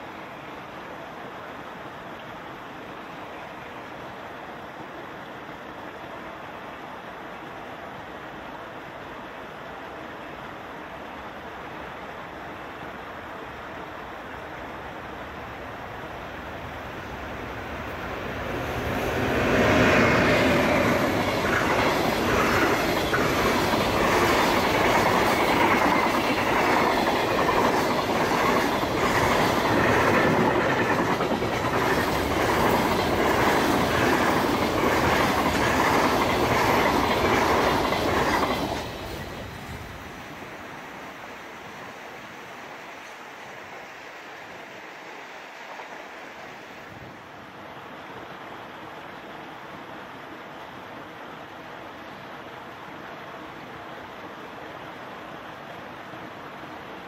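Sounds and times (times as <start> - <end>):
freight train passing: 13.2 - 47.3.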